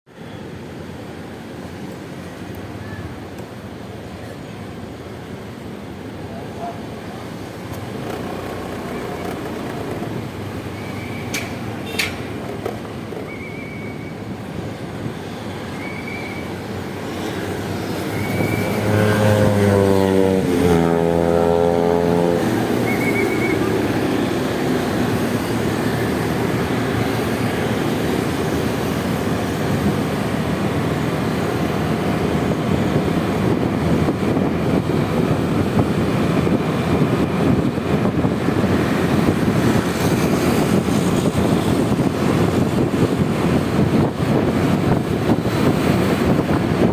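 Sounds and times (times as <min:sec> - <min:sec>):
road and wind noise: 0:00.1 - 0:46.9
scooter engine: 0:07.7 - 0:13.3.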